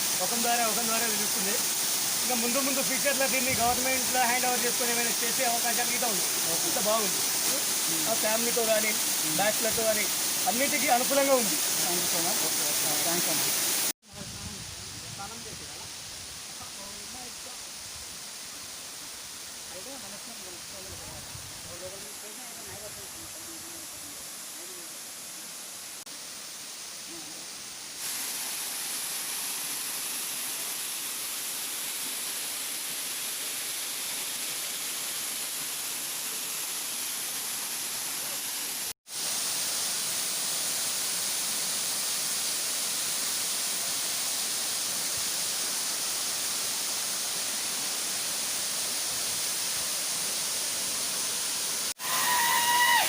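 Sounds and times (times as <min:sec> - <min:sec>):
waterfall rushing: 0:00.0 - 0:14.0, 0:21.7 - 0:53.0.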